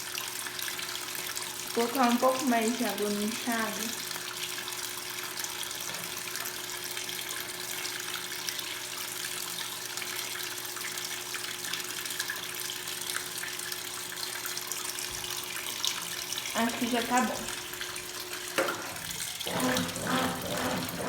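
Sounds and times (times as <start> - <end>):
washing machine filling with water: 0.0 - 21.0.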